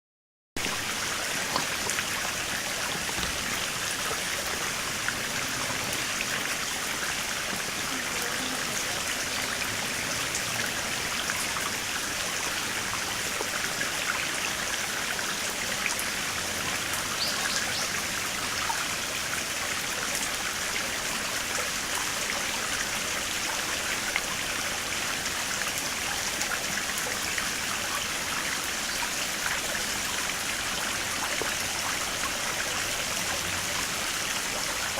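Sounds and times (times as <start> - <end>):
stream flowing over rocks: 0.6 - 34.9.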